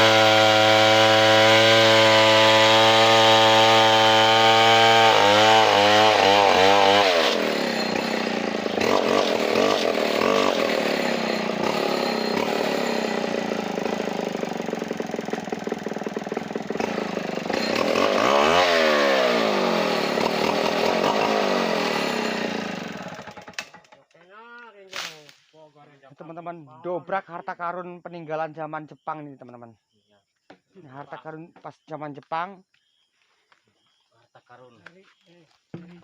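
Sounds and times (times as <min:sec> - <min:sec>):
chainsaw cutting log: 0:00.0 - 0:24.0, 0:24.9 - 0:25.4.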